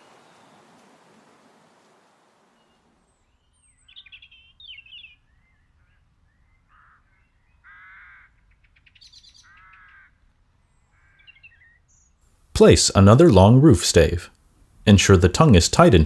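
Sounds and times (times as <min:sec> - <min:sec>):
harsh caw-like bird calls: 0:06.6 - 0:11.7.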